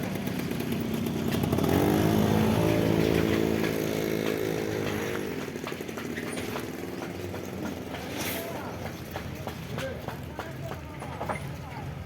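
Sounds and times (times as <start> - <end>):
motor engine running: 0.0 - 10.7.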